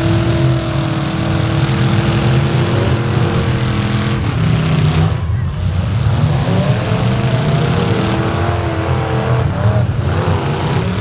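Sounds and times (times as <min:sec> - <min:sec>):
truck engine running at high revs: 0:00.0 - 0:11.0.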